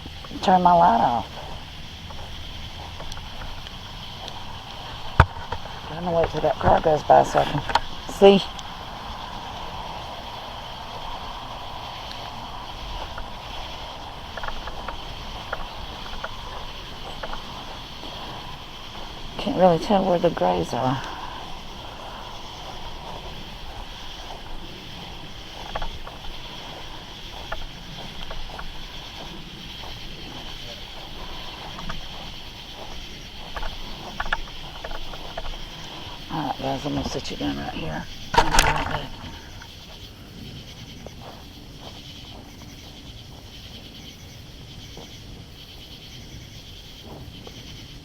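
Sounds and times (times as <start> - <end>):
night insects droning: 0.0 - 48.0
faint soft ticks: 1.3 - 8.8, 12.0 - 19.2, 21.0 - 36.3.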